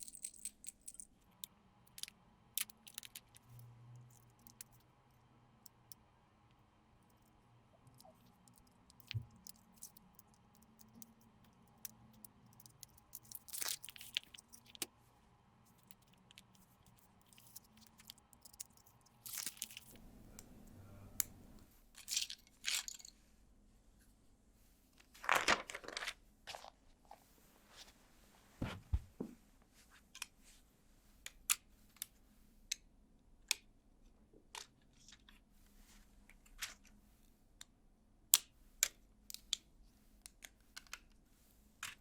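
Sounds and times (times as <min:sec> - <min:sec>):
small plastic clicks: 0:00.0 - 0:04.9, 0:05.6 - 0:06.0, 0:07.1 - 0:15.0, 0:15.7 - 0:20.0, 0:38.3 - 0:41.2.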